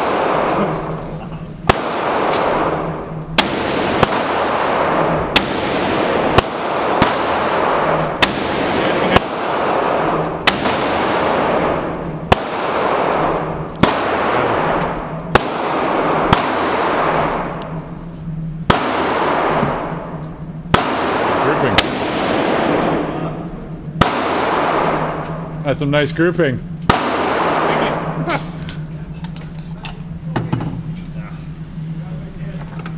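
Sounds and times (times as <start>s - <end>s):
ringing echo: 0.0s - 25.9s
steady low hum: 0.0s - 32.9s
handgun shots: 1.7s - 17.8s, 18.7s - 22.7s.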